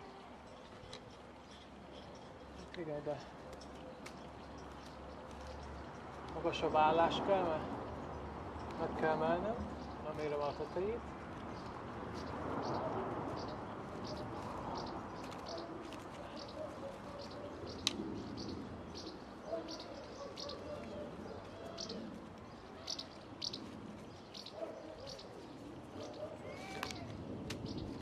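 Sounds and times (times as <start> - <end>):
small bird chirping: 16.3 - 28.0.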